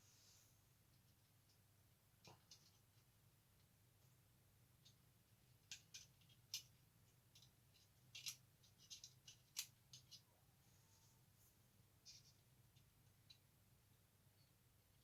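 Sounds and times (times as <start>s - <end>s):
plastic parts clicking: 5.6s - 10.2s.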